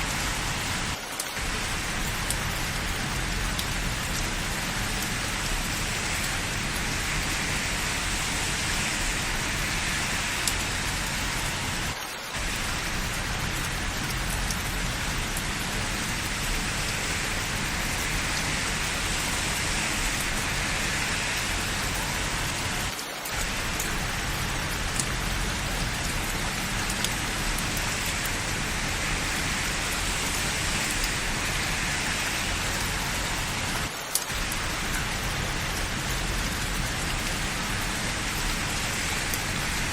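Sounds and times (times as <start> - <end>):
rain on hard surfaces: 0.0 - 39.9
faint drip ticks: 2.0 - 4.3, 10.4 - 10.6, 23.2 - 28.4.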